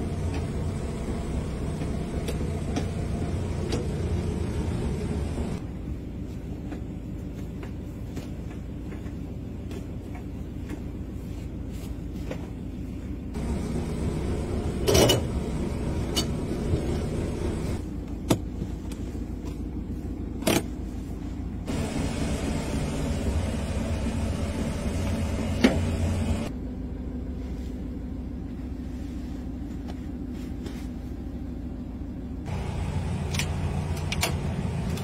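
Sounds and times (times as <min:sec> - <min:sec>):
vehicle engine idling: 0:00.0 - 0:05.6, 0:13.4 - 0:17.9, 0:21.7 - 0:30.4, 0:31.3 - 0:35.0.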